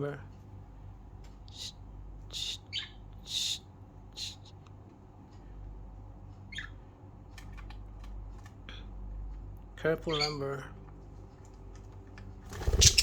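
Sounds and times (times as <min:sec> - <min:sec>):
low steady hum: 0:00.0 - 0:13.0
budgerigars chirping and squawking: 0:06.5 - 0:06.8, 0:10.0 - 0:10.6, 0:12.6 - 0:13.0.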